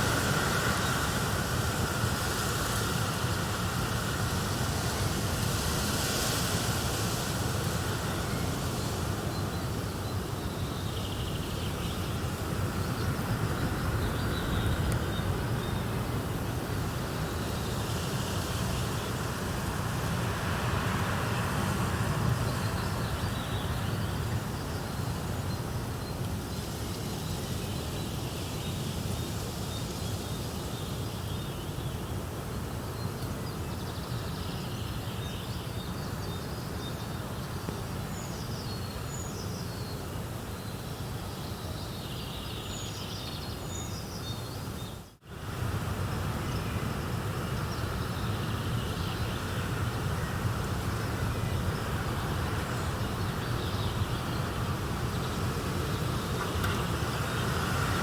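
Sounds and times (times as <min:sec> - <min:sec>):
steady rushing noise: 0:00.0 - 0:10.4, 0:11.3 - 0:25.2, 0:49.4 - 0:58.0.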